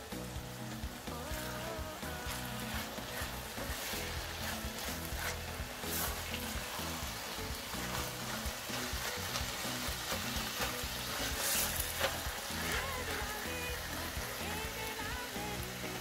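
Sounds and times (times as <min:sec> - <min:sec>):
vegetables sizzling in a pan: 0:00.0 - 0:16.0
spatula scraping a pan: 0:02.0 - 0:14.7.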